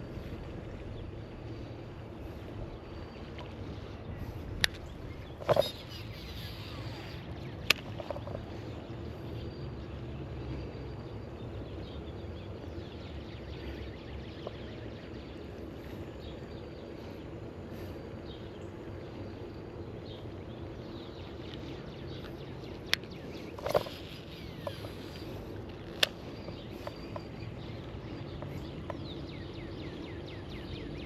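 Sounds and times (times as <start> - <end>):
faint hum: 0.0 - 31.0.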